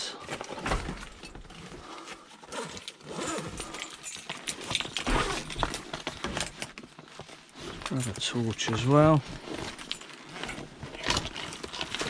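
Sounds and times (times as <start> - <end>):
tools being handled: 2.7 - 8.7.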